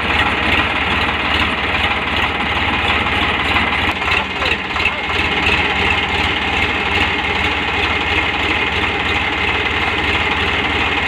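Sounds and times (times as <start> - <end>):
diesel tractor engine running: 0.0 - 11.0.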